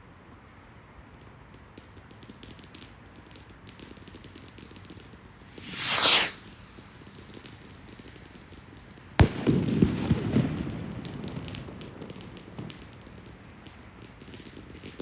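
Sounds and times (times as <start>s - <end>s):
fireworks crackling pops: 1.0s - 15.0s
firework whoosh falling in pitch: 5.3s - 7.9s.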